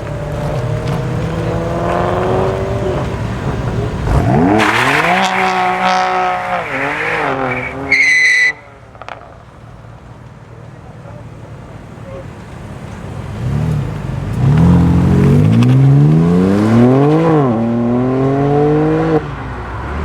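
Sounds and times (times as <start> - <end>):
car engine revving hard: 0.0 - 9.2, 13.3 - 20.0
tyre squeal: 3.8 - 8.8.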